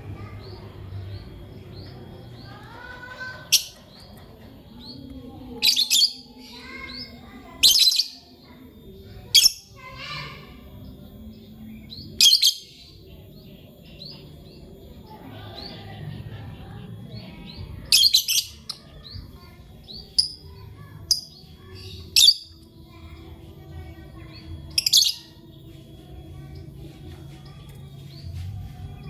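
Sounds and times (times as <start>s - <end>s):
lovebirds shrill chirps: 11.7s - 12.9s.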